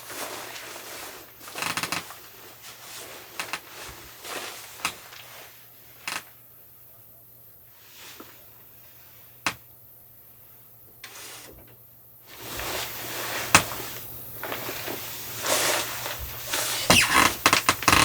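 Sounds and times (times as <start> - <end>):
rustling handling noise: 0.0 - 6.4, 12.3 - 18.0.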